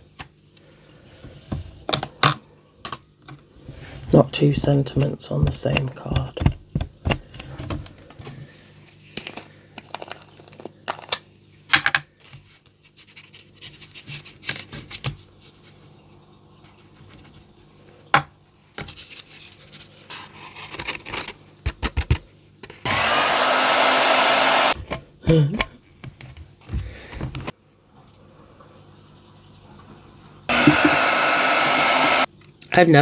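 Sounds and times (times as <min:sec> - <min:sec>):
heat gun blowing: 0:22.9 - 0:24.8, 0:30.5 - 0:32.3.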